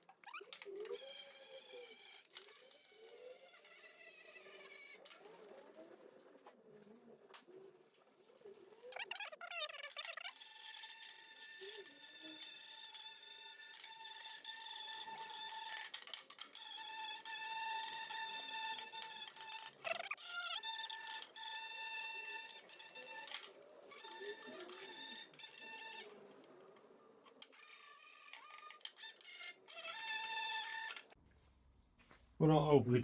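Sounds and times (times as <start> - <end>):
power tool whining: 10.3 - 26.5, 27.3 - 31.2.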